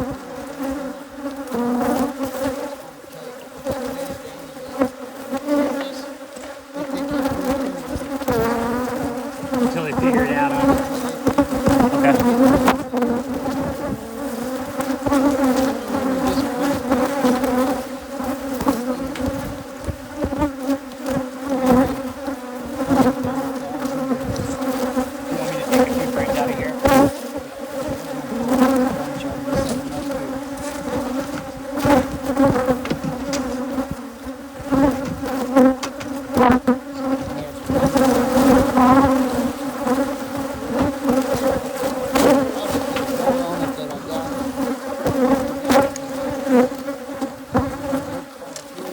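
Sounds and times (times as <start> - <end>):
bees buzzing: 0.0 - 48.9
clicks and knocks: 32.7 - 33.7.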